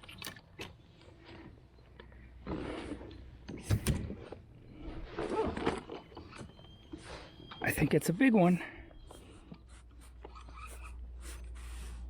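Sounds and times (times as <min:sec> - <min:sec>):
fishing gear rattling and scraping: 0:00.0 - 0:08.0.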